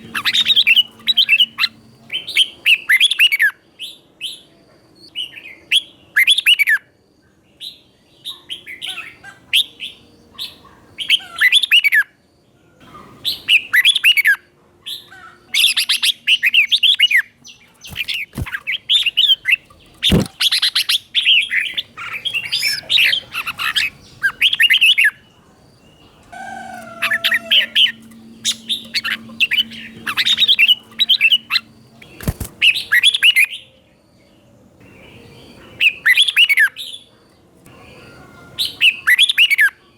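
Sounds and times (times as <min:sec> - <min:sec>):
bulbul singing warbled phrases: 0:00.0 - 0:03.5, 0:15.0 - 0:33.7.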